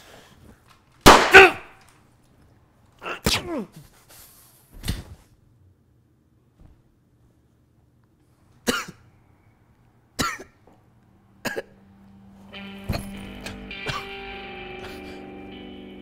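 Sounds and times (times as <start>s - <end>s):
man coughing harshly: 8.7s - 9.0s, 10.2s - 10.6s, 11.4s - 11.8s, 12.9s - 14.2s, 14.8s - 15.3s
soft guitar music: 12.1s - 16.0s.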